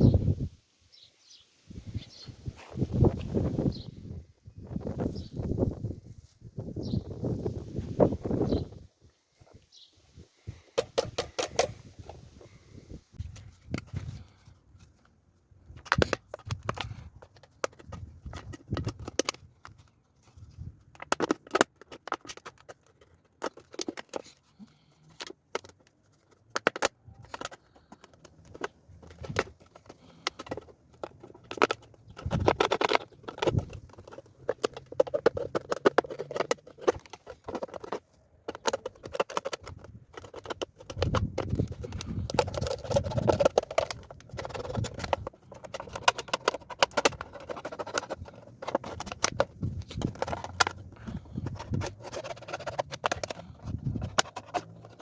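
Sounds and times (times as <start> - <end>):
hands handling objects: 1.7 - 55.0.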